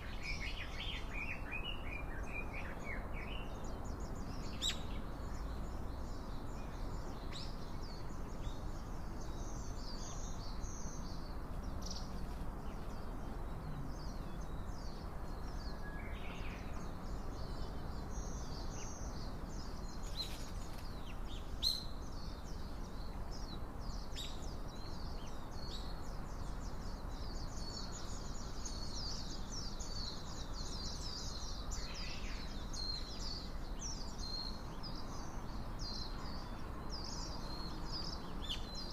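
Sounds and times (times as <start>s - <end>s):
outdoor background hiss: 0.0s - 38.9s
small birds chirping: 0.0s - 38.9s.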